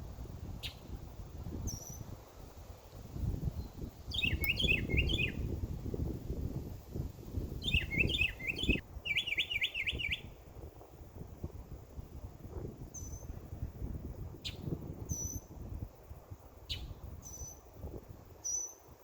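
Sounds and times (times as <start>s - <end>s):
songbird chirping and trilling: 0.6s - 0.9s, 1.6s - 2.1s, 3.6s - 5.6s, 7.6s - 10.4s, 12.9s - 13.3s, 14.4s - 15.5s, 16.6s - 17.7s, 18.4s - 18.9s.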